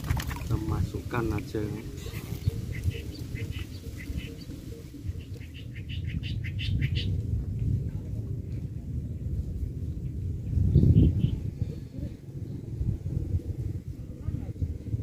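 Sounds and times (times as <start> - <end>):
low rumble: 2.6 - 15.0.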